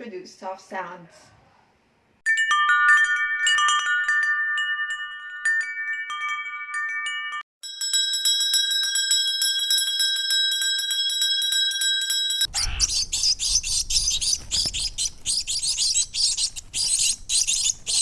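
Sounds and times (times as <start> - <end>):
wind chimes tinkling: 2.3 - 12.8
rapid high-pitched ringing: 2.4 - 12.6.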